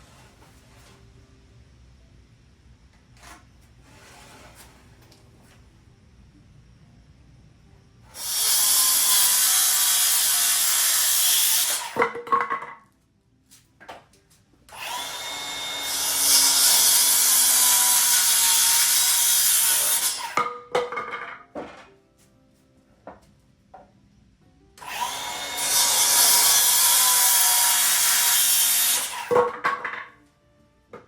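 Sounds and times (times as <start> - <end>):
handheld power tool running: 8.2 - 12.0, 14.7 - 20.4, 24.8 - 29.5.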